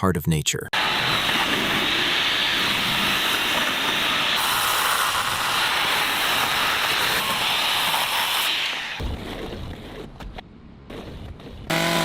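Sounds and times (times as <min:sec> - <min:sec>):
circular saw cutting wood: 0:00.8 - 0:09.0, 0:11.7 - 0:12.0.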